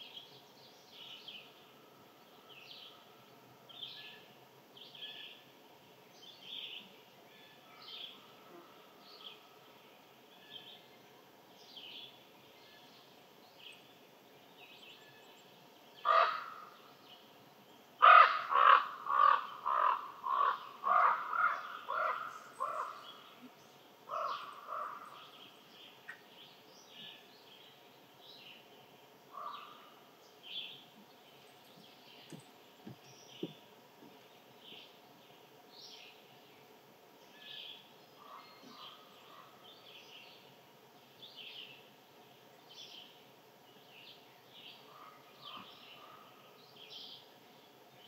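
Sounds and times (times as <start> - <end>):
small birds chirping: 9.1 - 48.0
bird calling loudly: 16.0 - 16.7, 18.0 - 23.1.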